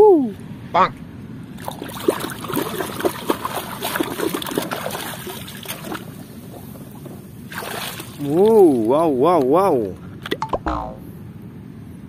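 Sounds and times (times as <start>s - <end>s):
water splashing: 1.6s - 9.1s.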